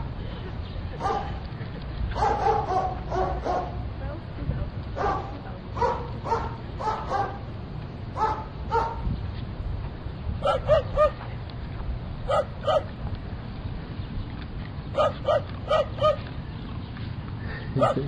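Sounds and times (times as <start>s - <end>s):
dog barking: 1.0s - 1.4s, 2.2s - 3.8s, 5.0s - 7.4s, 8.2s - 9.0s, 10.4s - 11.2s, 12.3s - 12.9s, 15.0s - 16.2s, 17.8s - 18.0s.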